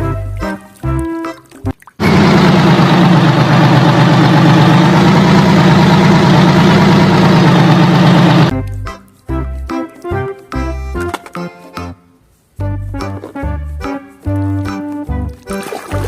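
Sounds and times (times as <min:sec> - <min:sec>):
heavy engine idling: 0:02.0 - 0:08.5.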